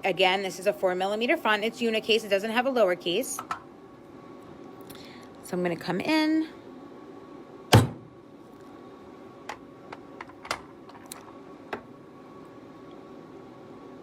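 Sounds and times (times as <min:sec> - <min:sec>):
hammer striking metal stamp: 0:07.7 - 0:08.0.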